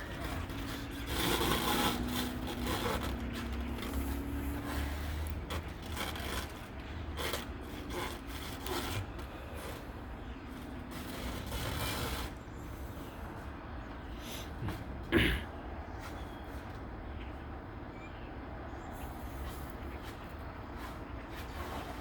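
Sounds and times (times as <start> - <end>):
plastic wrap rustling: 5.2 - 9.0.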